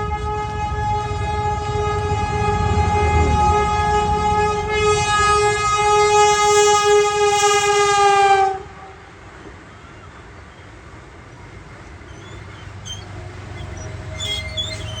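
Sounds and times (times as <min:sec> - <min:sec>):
train horn blast: 0:00.0 - 0:09.2
passing train rumble: 0:00.0 - 0:15.0.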